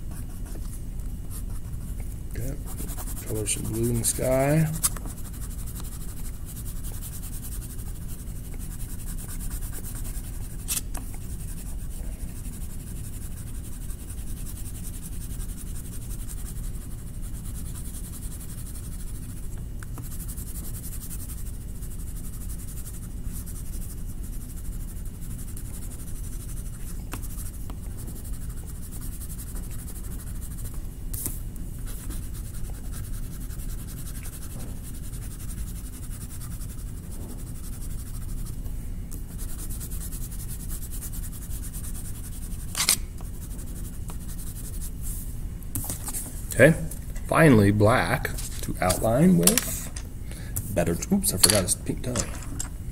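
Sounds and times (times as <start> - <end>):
drawing stick rubbing on paper: 2.4 - 19.4, 31.8 - 38.6, 39.3 - 45.1.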